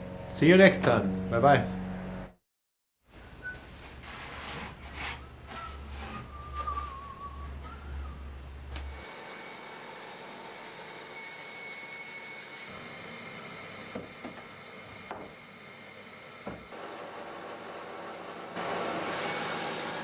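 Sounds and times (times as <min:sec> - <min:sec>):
bandsaw running: 0:08.9 - 0:12.8, 0:16.7 - 0:20.0.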